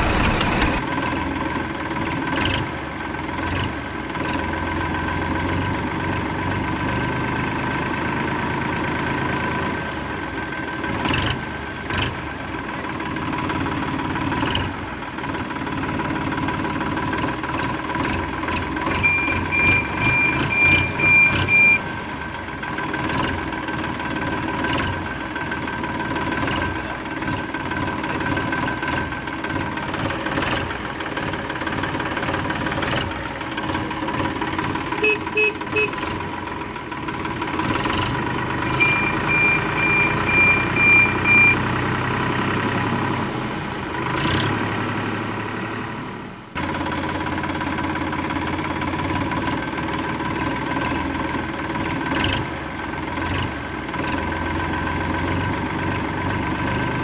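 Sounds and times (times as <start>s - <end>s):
small motors whining: 0.0s - 0.8s
high beeps: 19.0s - 21.8s, 38.7s - 41.7s.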